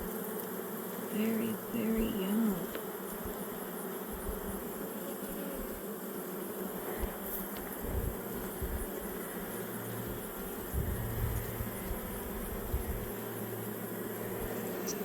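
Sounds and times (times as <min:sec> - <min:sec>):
bees buzzing: 0:00.0 - 0:15.0
low bumps: 0:10.0 - 0:13.1.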